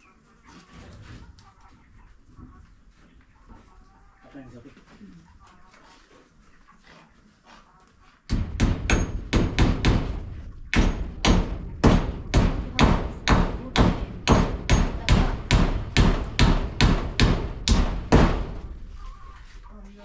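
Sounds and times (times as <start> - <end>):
hammer driving nails: 8.3 - 18.6.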